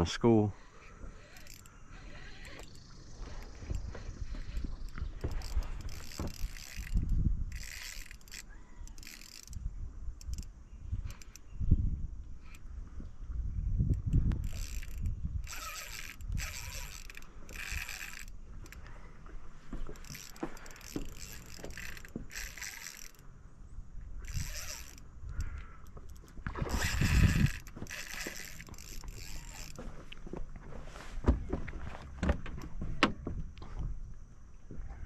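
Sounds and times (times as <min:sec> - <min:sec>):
fishing reel gear whirring: 0:00.6 - 0:13.0, 0:13.8 - 0:23.3, 0:24.2 - 0:30.1.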